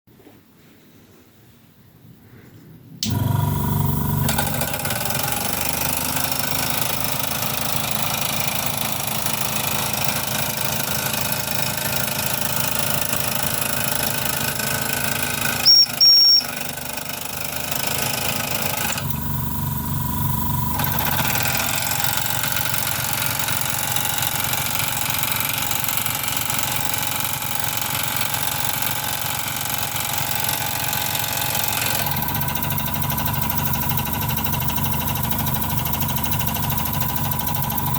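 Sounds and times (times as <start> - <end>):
steam engine chuffing: 3.0 - 37.9
high-pitched steam whistle: 15.6 - 16.6.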